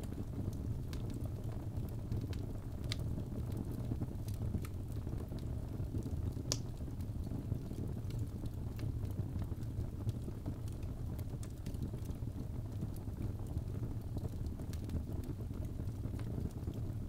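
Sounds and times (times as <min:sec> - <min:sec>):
fire crackling and popping: 0:00.0 - 0:17.0
fire rumbling: 0:00.0 - 0:17.0.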